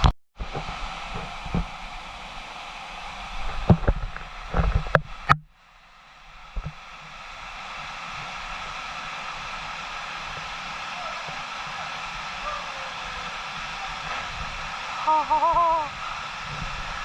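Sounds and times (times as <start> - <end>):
waterfall rushing: 6.1 - 17.0.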